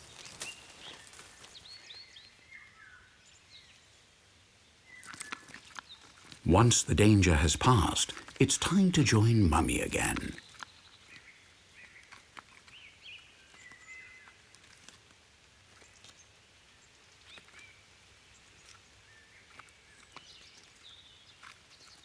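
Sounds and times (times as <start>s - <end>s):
woodland background noise: 0.0s - 5.5s, 6.4s - 10.4s.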